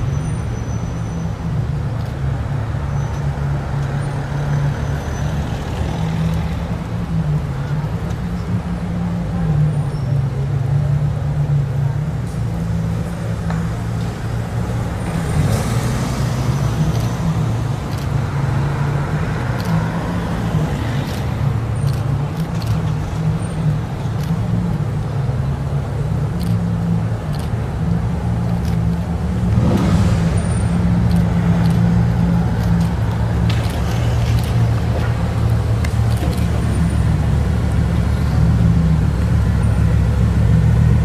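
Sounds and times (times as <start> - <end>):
car engine low drone: 0.0 - 41.0.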